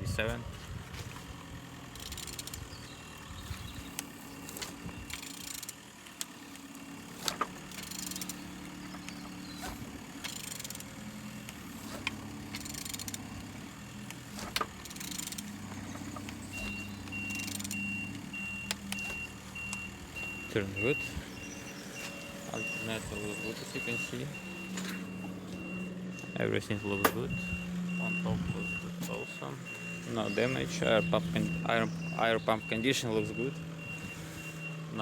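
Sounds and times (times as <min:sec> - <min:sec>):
engine turned over by hand: 0:00.2 - 0:35.0
repeating beep: 0:16.6 - 0:34.6.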